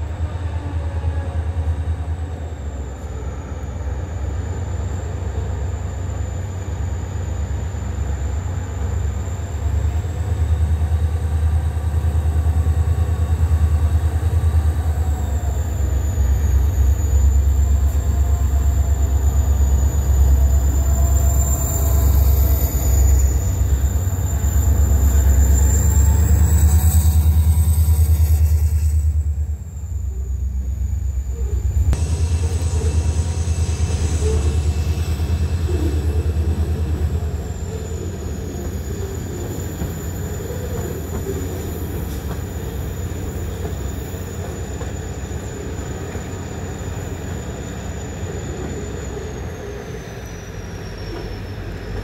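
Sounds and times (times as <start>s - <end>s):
diesel locomotive rumble: 0.0s - 52.0s
train cars rumbling on rails: 0.0s - 52.0s.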